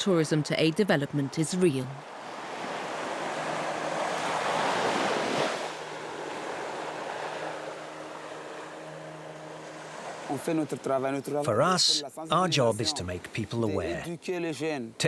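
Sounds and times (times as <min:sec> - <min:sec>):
sea surf washing on shore: 0:01.9 - 0:14.0.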